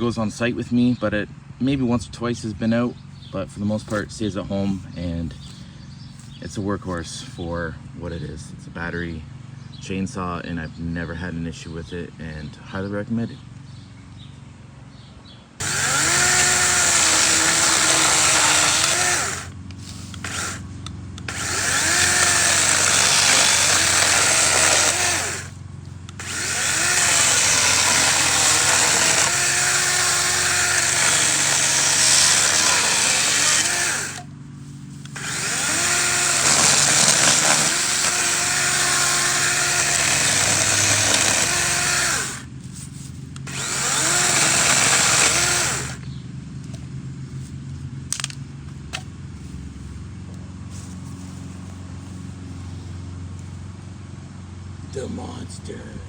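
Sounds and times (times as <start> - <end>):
chainsaw cutting branches: 15.6 - 46.1.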